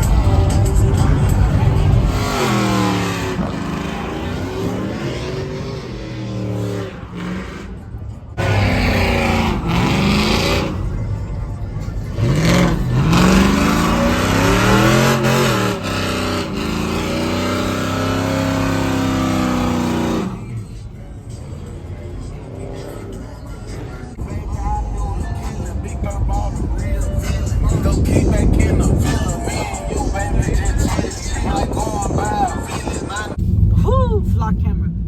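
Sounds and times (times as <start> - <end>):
engine revving hard: 0.0 - 11.0, 12.1 - 20.6.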